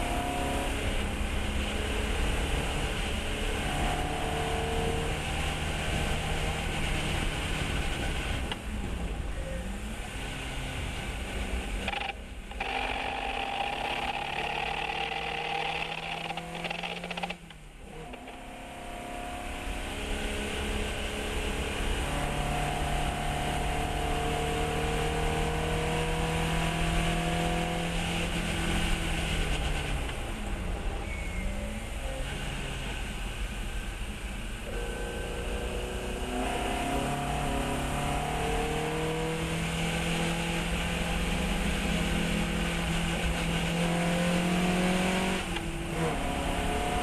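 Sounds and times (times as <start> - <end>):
race car engine revving: 10.0 - 17.4, 34.7 - 47.0.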